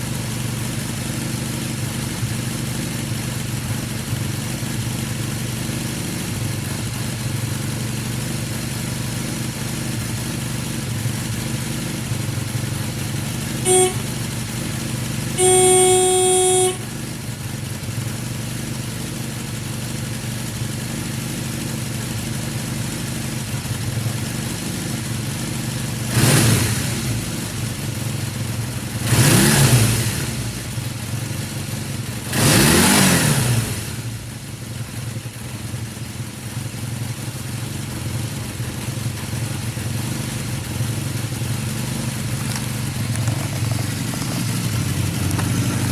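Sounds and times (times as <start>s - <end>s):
motorcycle engine idling: 0.0s - 32.9s, 33.7s - 45.9s
engine throttle blips: 12.0s - 18.3s, 37.9s - 45.9s
horn beeps: 13.6s - 14.5s, 15.3s - 17.2s.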